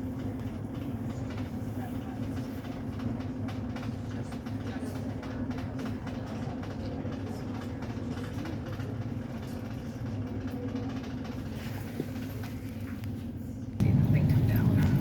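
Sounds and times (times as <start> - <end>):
ferry engine drone: 13.6 - 15.0.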